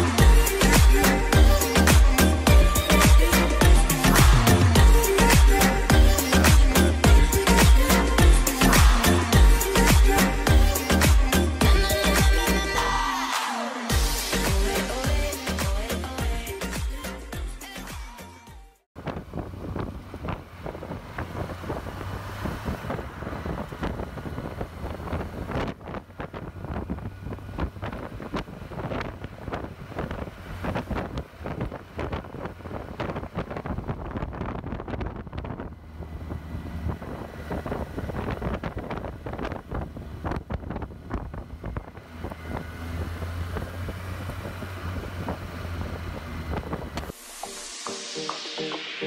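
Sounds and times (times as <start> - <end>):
motorcycle engine running: 0.0 - 12.8
wind buffeting microphone: 19.0 - 47.1.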